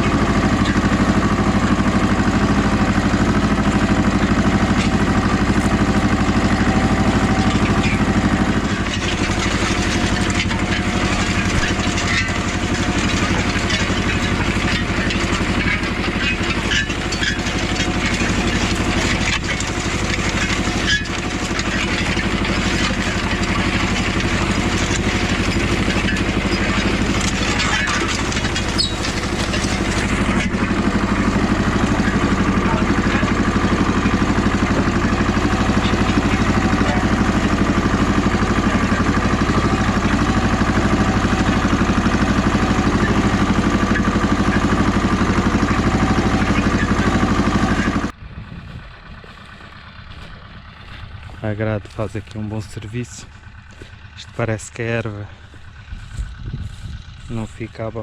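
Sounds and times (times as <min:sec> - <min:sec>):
tractor diesel engine running: 0:00.0 - 0:58.0
light clattering: 0:03.8 - 0:48.1.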